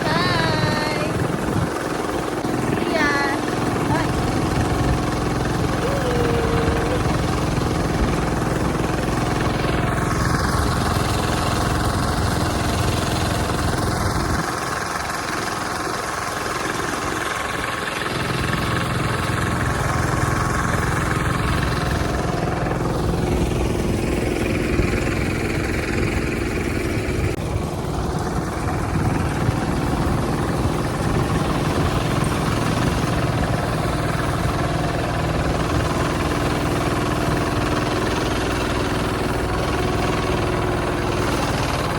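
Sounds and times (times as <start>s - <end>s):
tractor engine rumbling: 0.0s - 14.1s.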